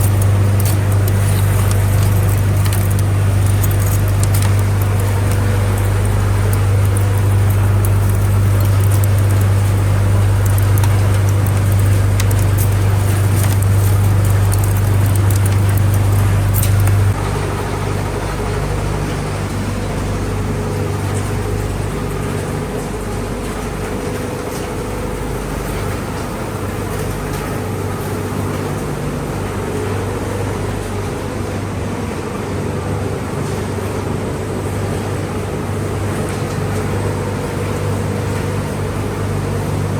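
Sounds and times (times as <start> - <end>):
clicks and rattles: 0.0 - 17.2
machinery low hum and rumble: 0.0 - 39.9.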